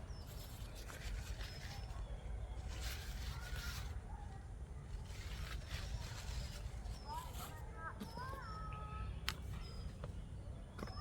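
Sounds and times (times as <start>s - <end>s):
soft rustling: 0.2s - 8.4s.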